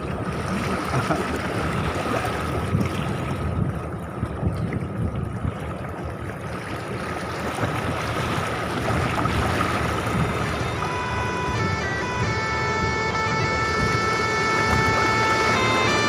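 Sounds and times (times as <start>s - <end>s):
gusty wind on the microphone: 0.0s - 15.7s
rushing water: 0.0s - 16.0s
thin high tone: 10.4s - 16.0s.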